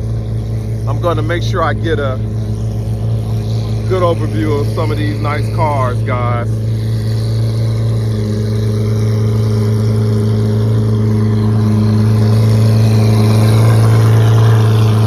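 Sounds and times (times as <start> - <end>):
sports car engine idling: 0.0 - 15.0.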